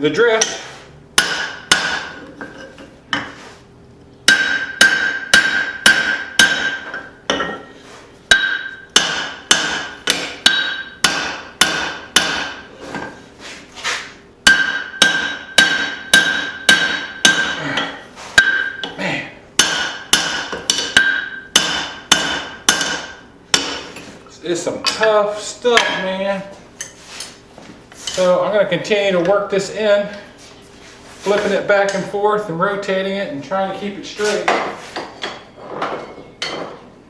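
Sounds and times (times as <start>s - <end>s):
hammer striking hot steel on anvil: 1.2s - 2.6s, 4.3s - 7.7s, 8.3s - 12.7s, 14.4s - 19.0s, 19.6s - 24.0s, 25.7s - 26.1s.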